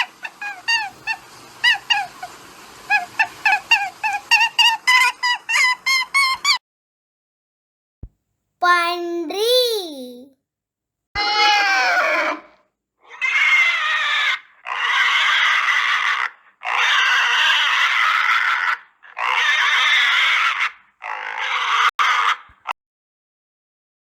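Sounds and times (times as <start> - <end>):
pig squealing: 0.0 - 2.3, 2.9 - 6.6, 11.2 - 22.5.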